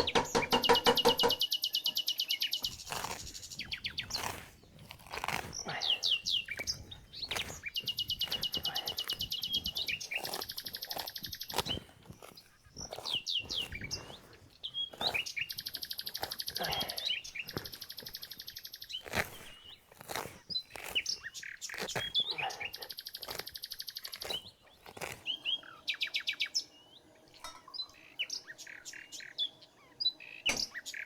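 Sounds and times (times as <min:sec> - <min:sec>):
songbirds trilling and chirping: 0:00.0 - 0:31.0.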